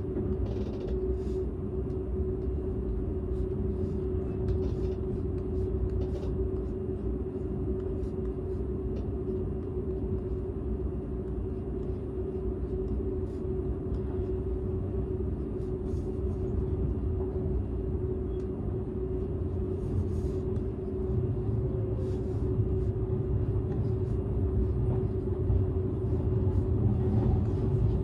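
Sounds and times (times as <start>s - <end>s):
constant hum: 0.0s - 28.0s
train cabin rumble: 23.5s - 28.0s.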